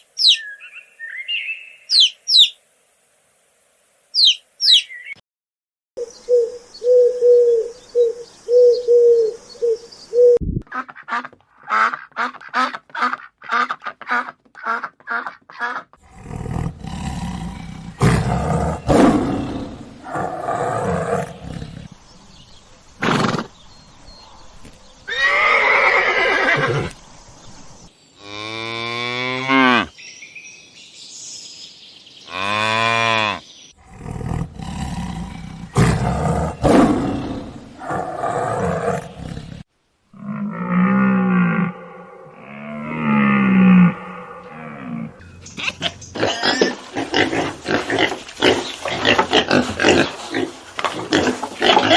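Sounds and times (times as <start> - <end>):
animal calls: 4.2 - 5.2, 40.2 - 50.4.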